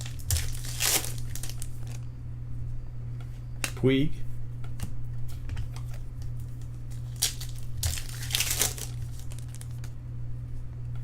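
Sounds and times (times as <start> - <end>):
foil wrapper crinkling: 0.0 - 2.0, 5.8 - 9.9
steady low hum: 0.0 - 11.0.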